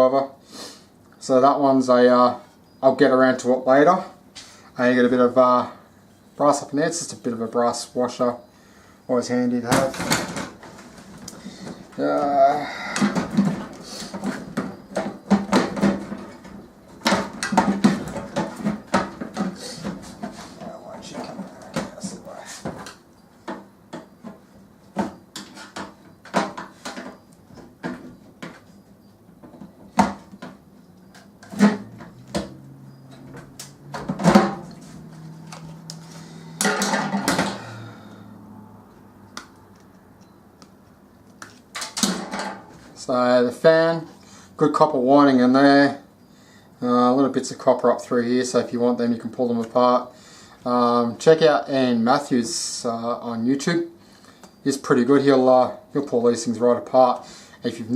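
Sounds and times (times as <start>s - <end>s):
microwave parts clattering: 9.6s - 37.7s, 41.4s - 43.0s.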